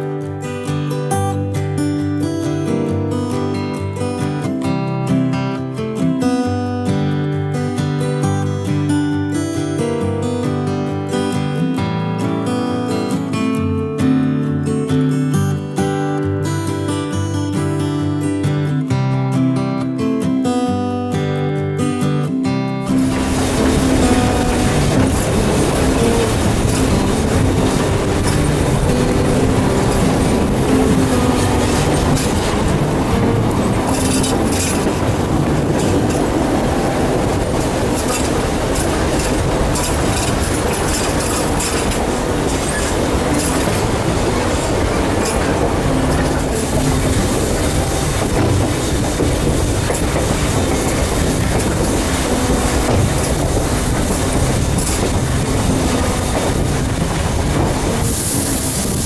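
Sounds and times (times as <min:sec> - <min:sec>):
train wheels clattering over rails: 0:23.0 - 0:59.0.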